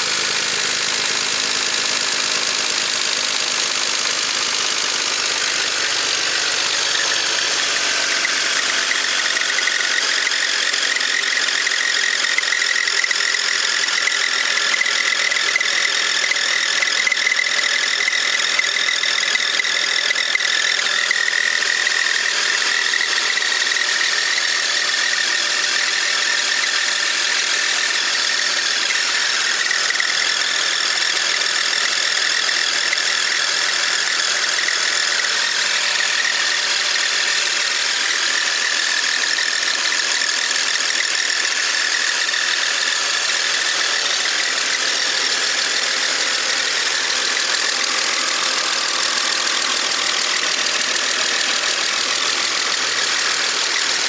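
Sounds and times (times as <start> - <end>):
car engine running: 0.0 - 54.0
rapid engine ticking: 0.0 - 54.0.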